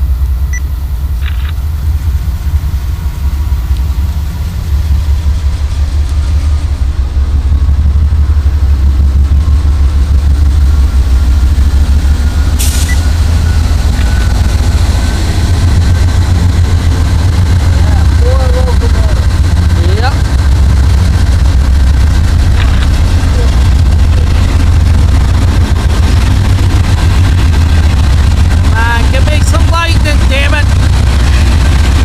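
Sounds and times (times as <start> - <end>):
freight train rumbling: 0.0 - 32.0.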